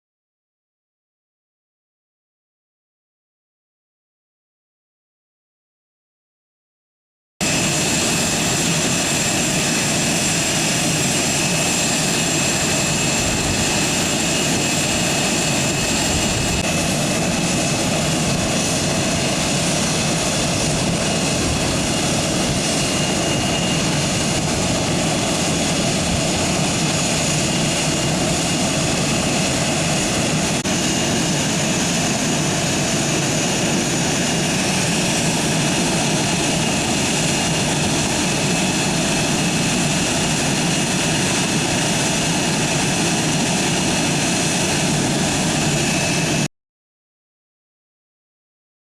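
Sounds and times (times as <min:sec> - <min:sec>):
aircraft turbine engines roaring: 0:07.4 - 0:46.5.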